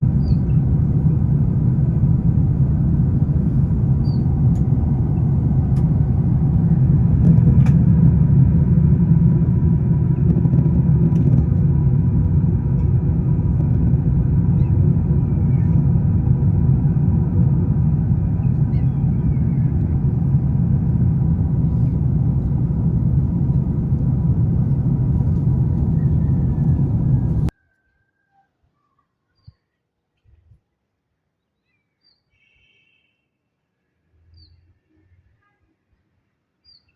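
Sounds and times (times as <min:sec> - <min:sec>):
loud low rumble: 0:00.0 - 0:27.5.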